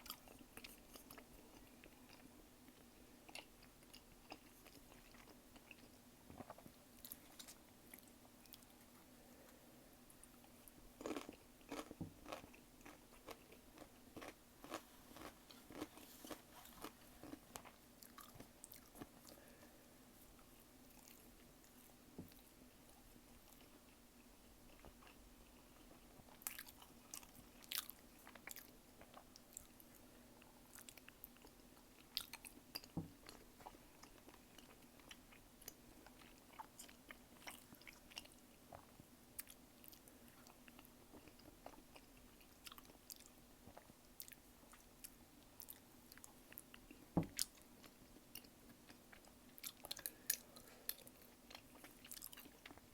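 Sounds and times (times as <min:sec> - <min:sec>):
faint steady hum: 0:00.0 - 0:52.9
chewing and biting: 0:11.0 - 0:19.4, 0:45.6 - 0:52.8.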